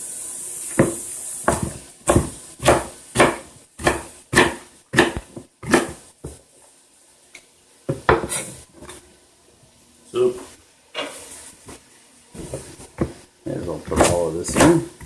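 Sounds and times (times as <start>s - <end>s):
knife chopping on cutting board: 0.8s - 6.4s, 12.4s - 15.0s.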